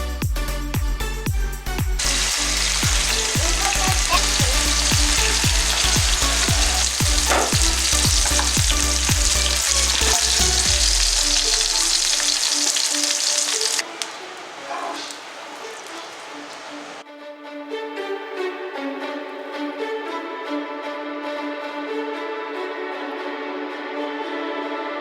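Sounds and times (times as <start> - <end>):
chicken sizzling in hot oil: 2.0 - 17.0.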